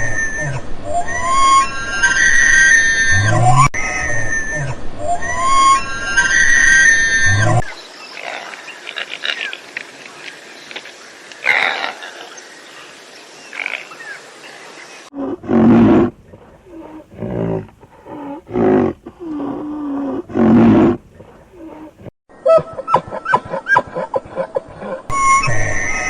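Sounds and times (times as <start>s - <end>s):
lion roaring: 15.1s - 22.1s.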